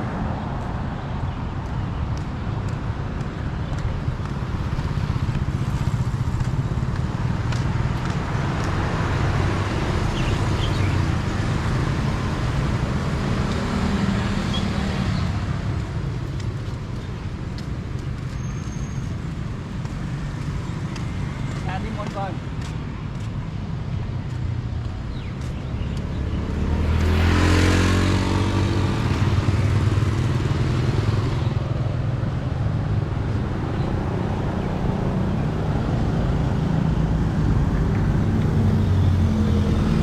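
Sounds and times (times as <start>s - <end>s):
tyre noise of passing vehicles: 0.0s - 40.0s
vehicle engines rumbling: 0.0s - 40.0s.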